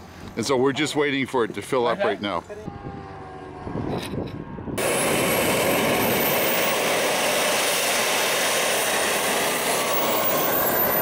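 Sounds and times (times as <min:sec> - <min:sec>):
high turbine whine: 0:02.7 - 0:11.0
model jet turbine roaring: 0:02.8 - 0:11.0.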